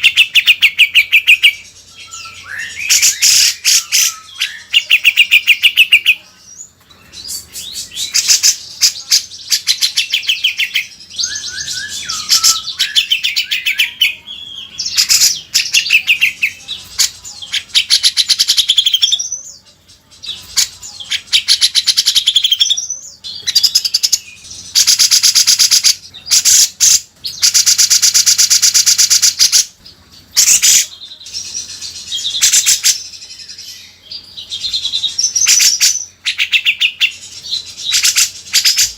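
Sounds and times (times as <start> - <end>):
bulbul singing: 0.0 - 38.9.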